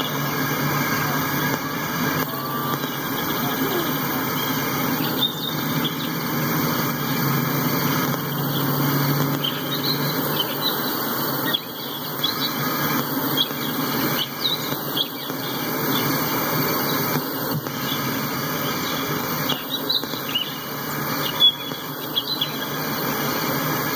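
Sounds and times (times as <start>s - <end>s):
high-pitched wheel squeals: 2.0s - 6.2s.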